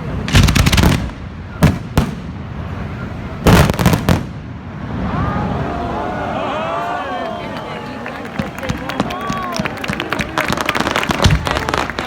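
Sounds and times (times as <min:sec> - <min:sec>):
fireworks bangs: 0:00.0 - 0:05.5, 0:08.2 - 0:12.0
people's voices: 0:04.9 - 0:12.0.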